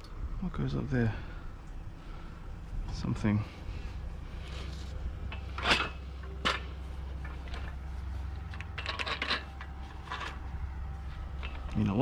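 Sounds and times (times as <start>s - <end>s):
low steady hum: 0.0s - 12.0s
small clicks and rattles: 5.3s - 10.5s.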